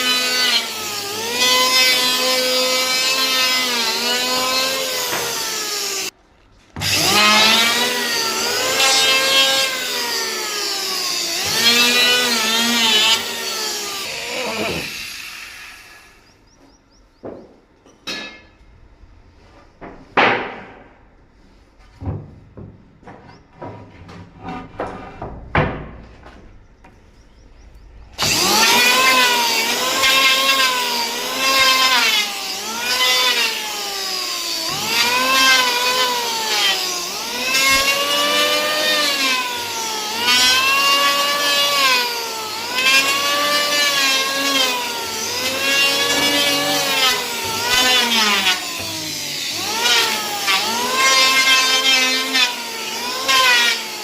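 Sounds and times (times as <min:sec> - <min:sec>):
hand saw cutting wood: 0:00.0 - 0:06.2, 0:06.8 - 0:16.3, 0:28.2 - 0:54.0.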